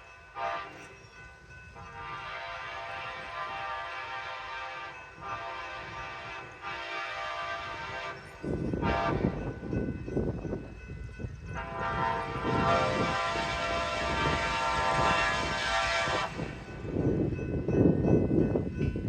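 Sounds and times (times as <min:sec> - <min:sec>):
low rumble of running train: 0:00.0 - 0:19.0
train horn blast: 0:00.4 - 0:00.9, 0:01.8 - 0:09.6, 0:11.6 - 0:16.7.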